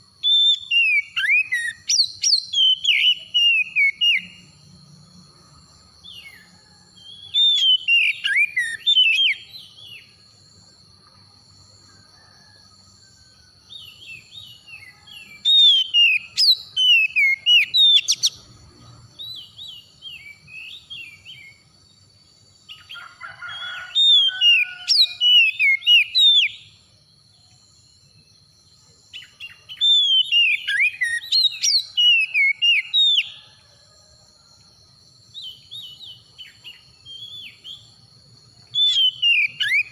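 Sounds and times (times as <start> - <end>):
bird singing whistled phrases: 0.2 - 4.4, 7.0 - 10.0, 13.8 - 18.4, 24.2 - 26.7, 29.2 - 33.4, 38.8 - 39.9.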